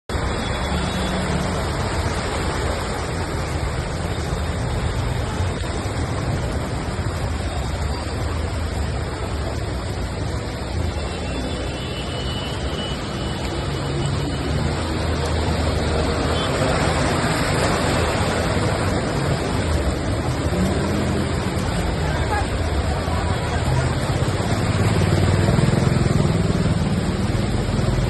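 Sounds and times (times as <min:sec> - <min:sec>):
road traffic rumble: 0:00.1 - 0:28.0.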